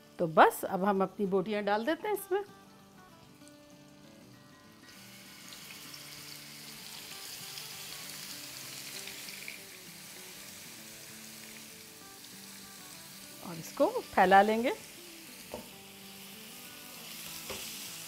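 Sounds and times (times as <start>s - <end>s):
chicken sizzling in frying pan: 3.2s - 18.0s.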